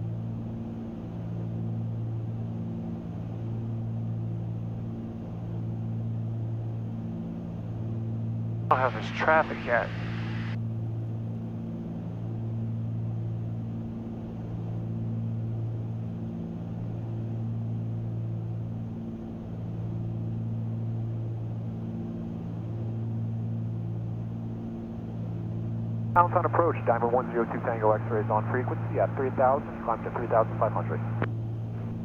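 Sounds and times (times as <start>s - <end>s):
propeller aircraft engines droning: 8.7s - 10.6s, 25.0s - 32.0s.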